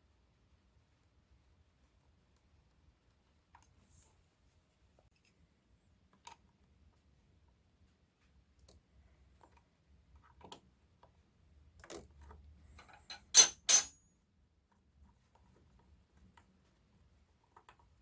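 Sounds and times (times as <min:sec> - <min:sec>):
sharp ringing metal clinks: 0:13.2 - 0:13.9.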